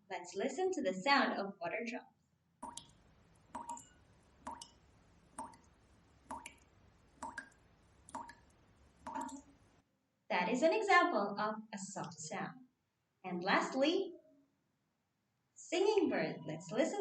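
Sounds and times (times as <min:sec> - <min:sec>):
water dripping: 0:02.6 - 0:09.6.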